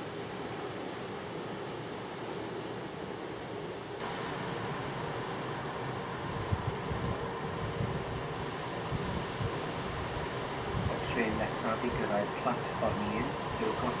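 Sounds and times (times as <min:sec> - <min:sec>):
diesel train rumbling: 0:04.0 - 0:14.0
wind buffeting microphone: 0:06.2 - 0:12.1.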